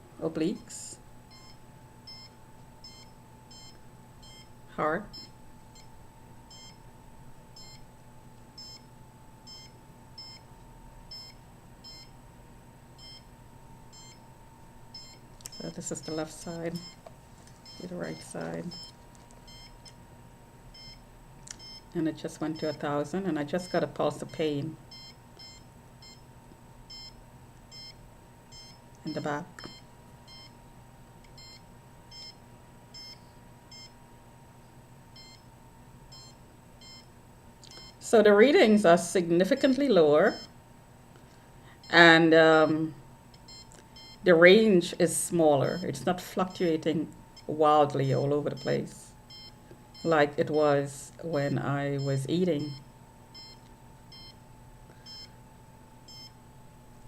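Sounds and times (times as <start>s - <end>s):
faint steady hum: 0.0s - 57.0s
meter short electronic beeps: 55.0s - 55.3s.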